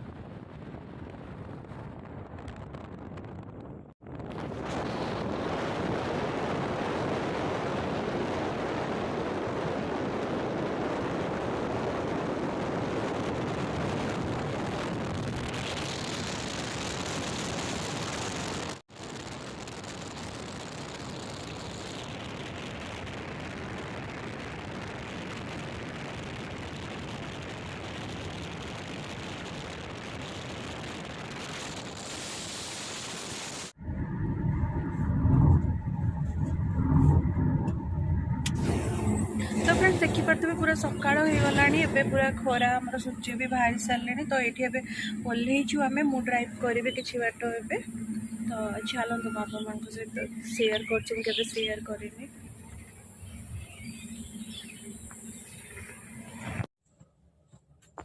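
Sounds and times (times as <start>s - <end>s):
car road and wind noise: 0.0s - 20.9s, 33.6s - 56.7s.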